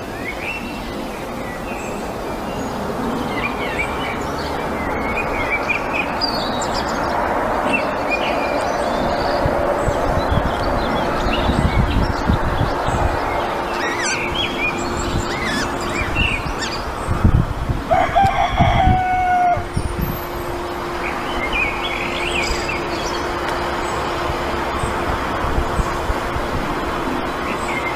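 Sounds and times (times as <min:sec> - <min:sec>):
small birds chirping: 0:00.0 - 0:17.4, 0:21.0 - 0:24.2
low wind rumble: 0:00.0 - 0:27.9
rooster crowing: 0:17.9 - 0:19.8.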